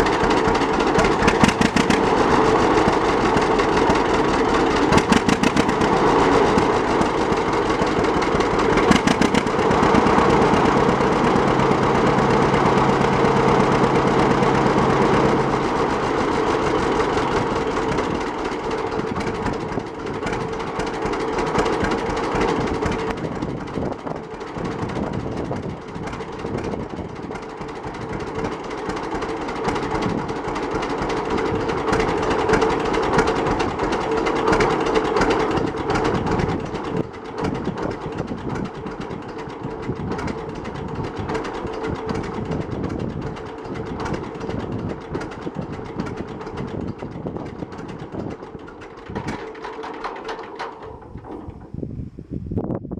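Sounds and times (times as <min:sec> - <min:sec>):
tractor engine putt-putt: 0:00.0 - 0:52.2.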